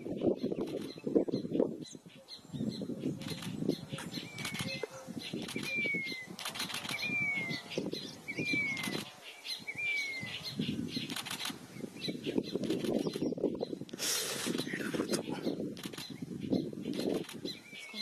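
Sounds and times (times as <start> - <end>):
bird wings flapping: 5.4 - 7.1, 11.0 - 11.6.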